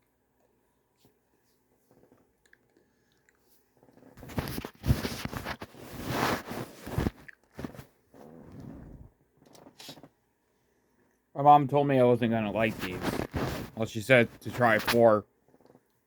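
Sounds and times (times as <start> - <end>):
chewing and crunching food: 1.8 - 4.5, 6.9 - 7.8.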